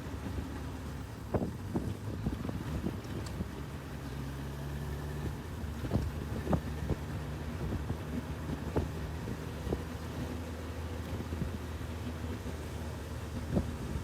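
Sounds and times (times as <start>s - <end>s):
motorcycle engine cruising: 0.0s - 14.0s
wind noise on microphone: 0.1s - 4.0s, 4.7s - 14.0s.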